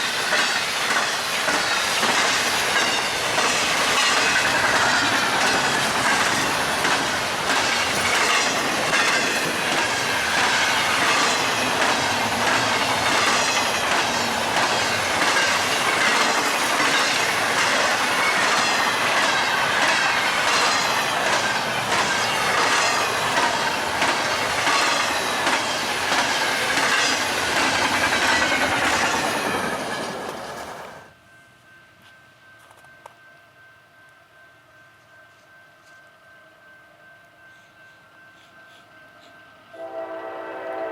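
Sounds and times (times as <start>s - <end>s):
freight train rushing past: 0.0s - 32.5s, 36.4s - 40.9s
wheels clicking over rail joints: 0.2s - 31.0s.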